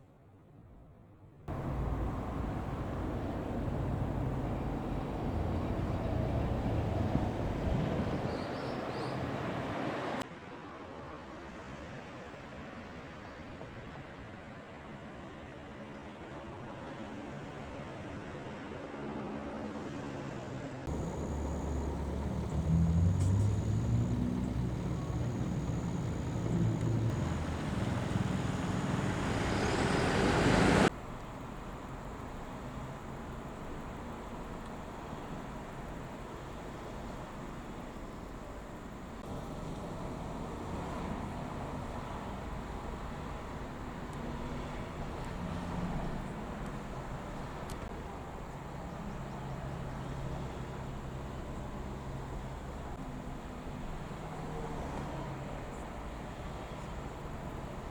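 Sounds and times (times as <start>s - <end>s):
large vehicle engine rumbling: 1.5s - 9.7s, 20.9s - 54.2s
road and wind noise: 1.5s - 57.9s
quiet hiss: 20.9s - 50.5s.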